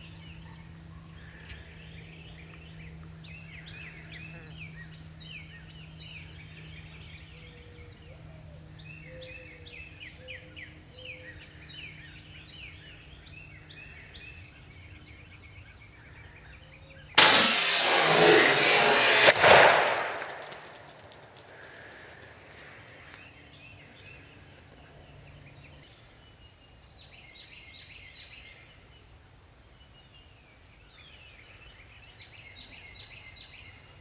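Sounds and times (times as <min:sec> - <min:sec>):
loud shotgun blast: 0:17.2 - 0:21.3.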